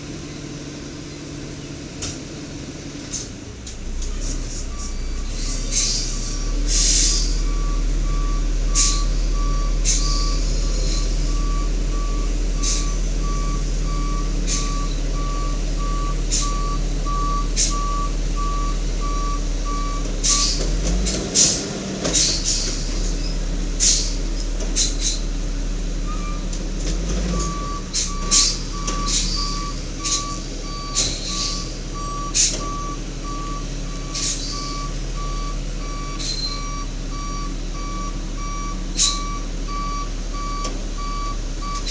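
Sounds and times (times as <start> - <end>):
reversing alarm beeping: 4.7 - 20.6, 26.0 - 26.5, 27.2 - 41.9.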